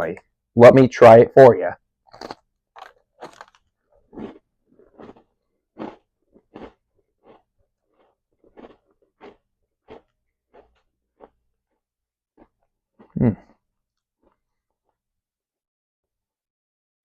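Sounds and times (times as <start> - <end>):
person chewing crunchy cookie: 2.0 - 15.0.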